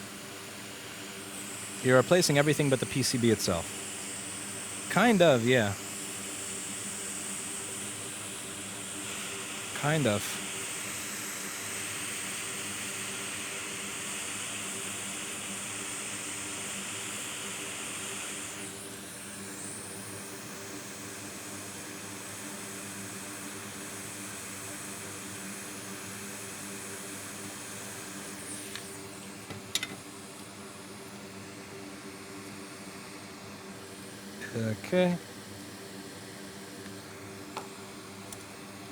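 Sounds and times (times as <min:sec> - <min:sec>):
air hissing from bench equipment: 0:00.0 - 0:30.4.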